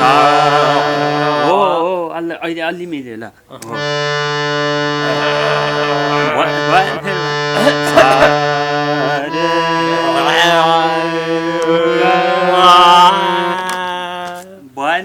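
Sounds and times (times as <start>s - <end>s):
harmonium drone: 0.0s - 1.8s, 3.7s - 13.8s
man singing drawn-out notes: 0.0s - 1.9s, 3.7s - 14.0s.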